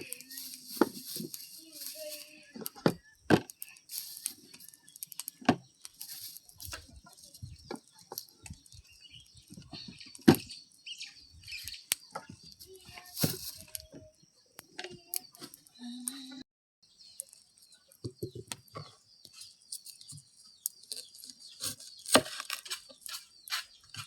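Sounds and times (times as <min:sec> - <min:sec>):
rustling: 0:00.0 - 0:10.5, 0:11.5 - 0:14.0.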